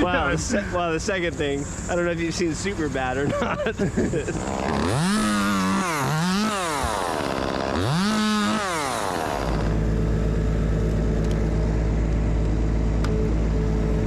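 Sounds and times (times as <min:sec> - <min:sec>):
chainsaw revving and idling: 0:04.1 - 0:11.4.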